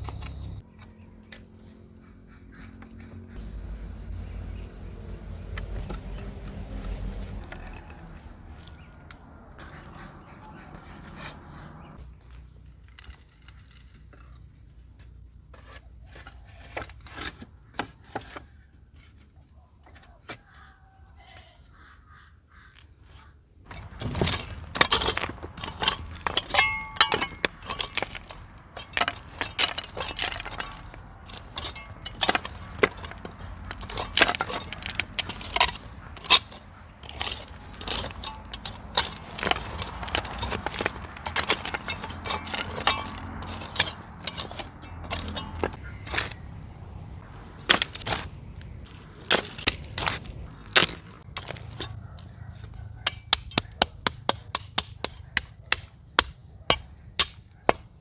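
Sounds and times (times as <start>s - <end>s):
faint steady high tone: 0.0s - 5.8s, 11.8s - 36.1s.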